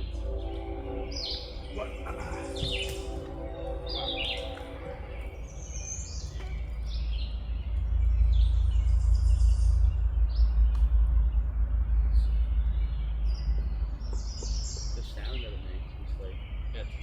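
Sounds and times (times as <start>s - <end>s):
low rumble on microphone: 0.0s - 17.0s
songbirds chirping: 0.0s - 17.0s.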